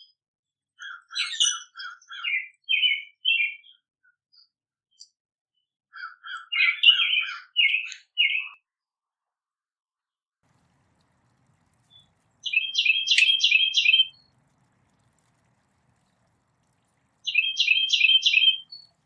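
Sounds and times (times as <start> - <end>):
songbird singing: 10.5 - 19.0.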